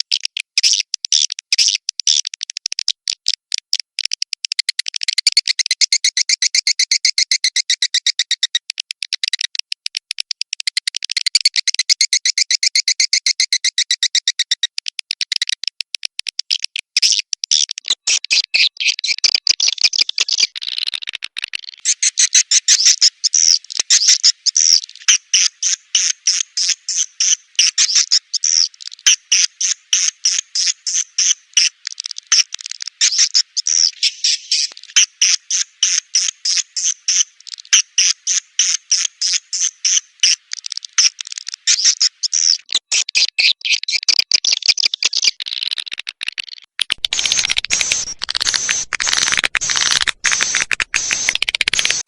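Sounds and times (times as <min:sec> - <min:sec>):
dense bird chatter with hiss: 0:21.9 - 0:41.0
swiftlet chirps: 0:47.0 - 0:52.0.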